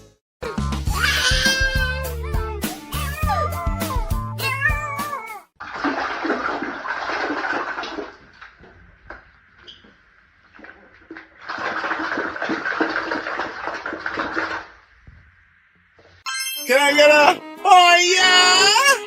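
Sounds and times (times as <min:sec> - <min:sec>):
rushing water: 0:05.6 - 0:08.7, 0:10.4 - 0:14.8.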